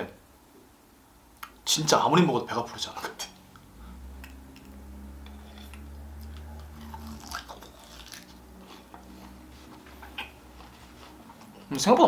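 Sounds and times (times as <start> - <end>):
chewing and biting meat: 4.6 - 11.7.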